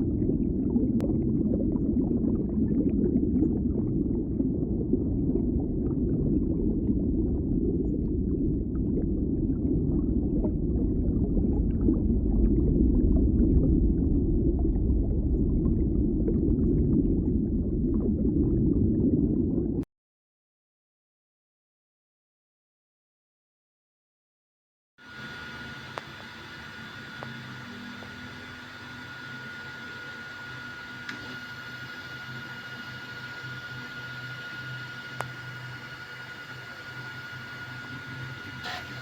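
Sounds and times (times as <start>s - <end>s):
printer motors and fans humming: 25.0s - 39.0s.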